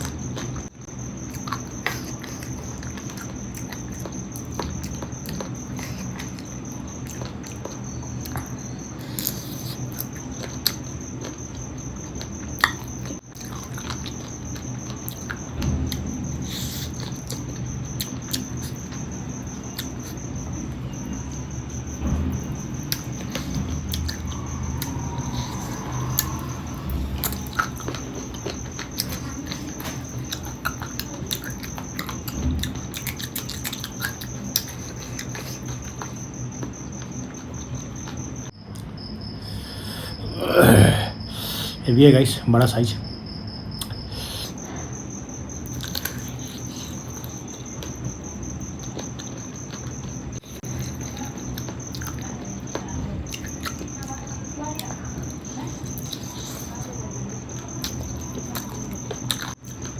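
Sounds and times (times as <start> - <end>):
person chewing food: 0.0 - 20.7, 22.4 - 41.7, 45.6 - 54.2, 55.7 - 56.9, 57.5 - 59.9
low hum: 20.9 - 31.0
steady high-pitched tone: 21.3 - 31.4.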